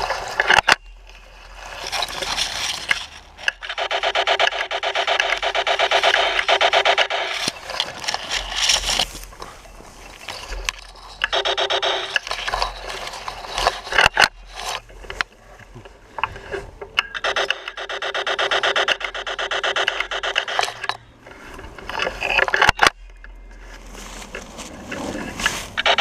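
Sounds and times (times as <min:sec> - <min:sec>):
sharp clicks: 0:02.0 - 0:09.1, 0:10.5 - 0:15.3, 0:16.9 - 0:21.1, 0:25.8 - 0:26.0
laser tag blasters firing: 0:03.6 - 0:07.5, 0:11.3 - 0:12.2, 0:17.2 - 0:20.8.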